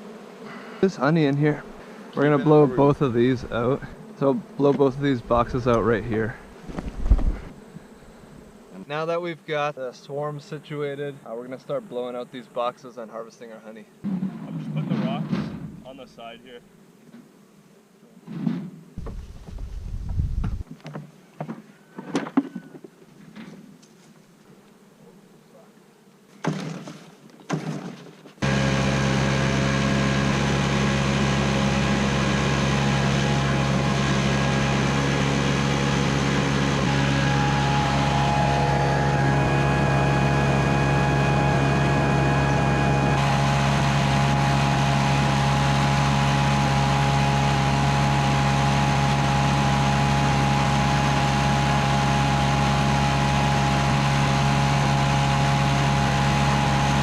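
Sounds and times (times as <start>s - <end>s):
leaf blower engine running: 0.0s - 8.5s, 28.4s - 57.0s.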